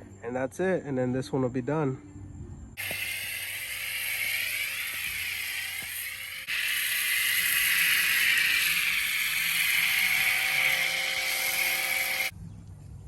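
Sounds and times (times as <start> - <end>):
faint motor whine: 2.8 - 12.3
pressure washer spraying foam: 2.8 - 12.3.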